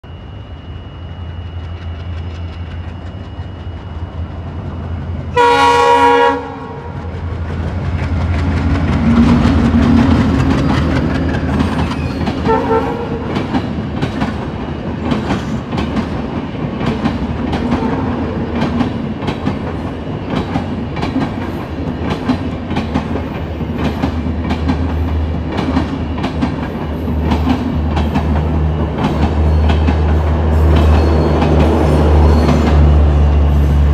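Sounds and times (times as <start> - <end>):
train horn: 5.3 - 7.0, 12.4 - 13.5, 17.7 - 18.5
train wheels clicking over rail joints: 6.8 - 33.8.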